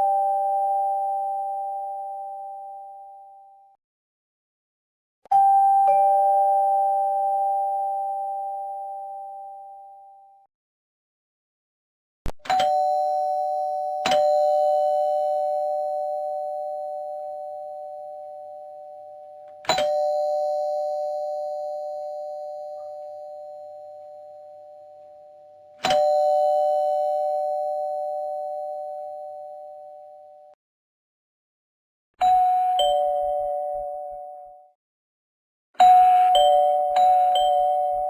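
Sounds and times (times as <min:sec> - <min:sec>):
two-note doorbell chime: 0:05.3 - 0:10.3, 0:12.5 - 0:30.2, 0:32.2 - 0:34.7, 0:35.8 - 0:38.0.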